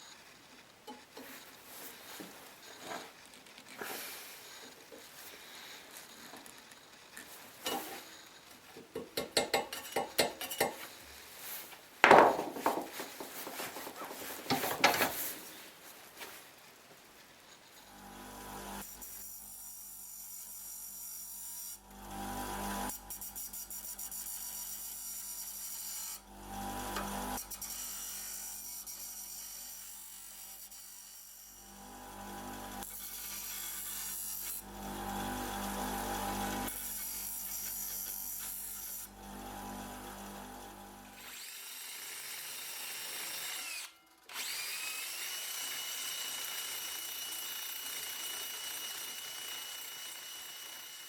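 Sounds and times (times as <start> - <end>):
power tool motor cutting wood: 17.8 - 19.1, 21.8 - 23.9, 26.0 - 28.6, 31.6 - 51.0.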